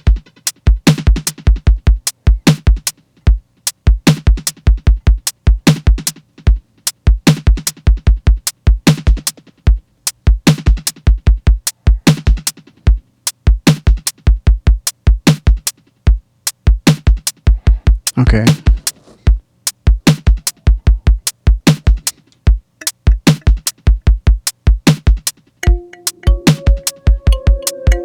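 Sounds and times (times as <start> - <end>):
drum machine kick thumps: 19.9 - 28.0
low synth tone: 25.6 - 28.0.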